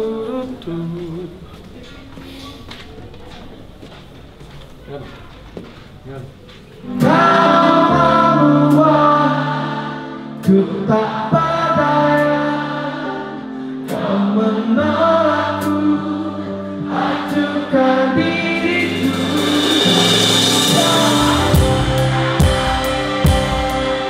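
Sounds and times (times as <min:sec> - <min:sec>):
band playing slow pop ballad: 0:06.8 - 0:24.0
cymbal swell: 0:18.5 - 0:24.0
sharp drum hits: 0:18.6 - 0:23.9.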